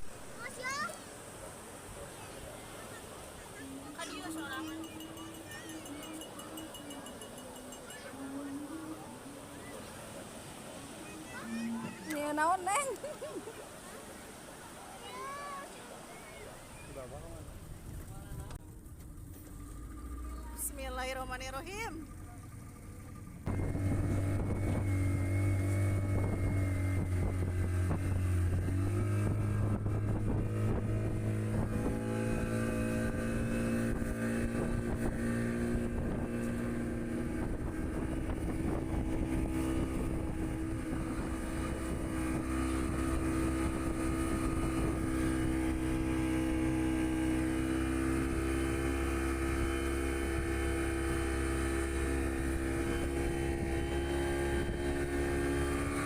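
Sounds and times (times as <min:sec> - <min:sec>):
outboard motorboat engine running: 0:00.0 - 0:56.0
wind noise on microphone: 0:23.5 - 0:56.0.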